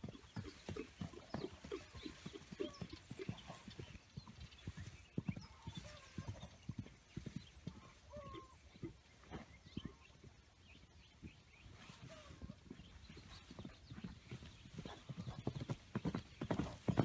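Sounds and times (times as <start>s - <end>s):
horse hoofbeats: 13.6s - 17.0s.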